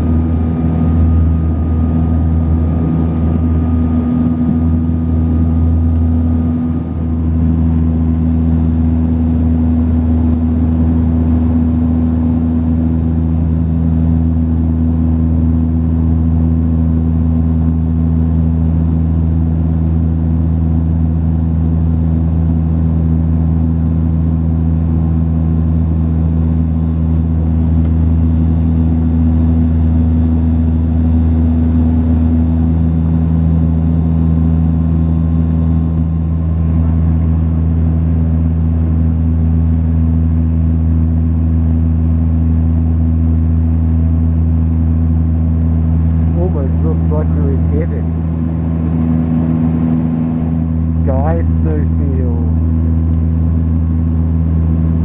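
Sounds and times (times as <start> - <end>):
turboprop cabin drone: 0.0 - 55.0
faint high whine: 25.9 - 55.0.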